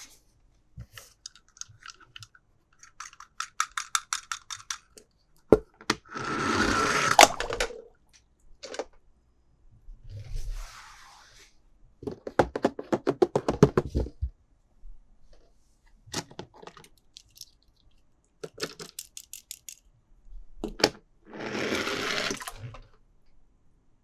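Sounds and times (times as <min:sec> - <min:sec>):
plastic clicks: 0:00.8 - 0:05.0, 0:16.2 - 0:19.8.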